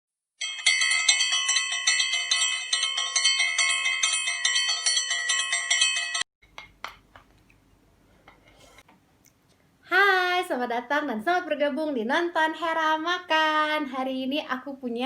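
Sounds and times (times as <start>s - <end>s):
bell-like jingle: 0.4s - 6.3s.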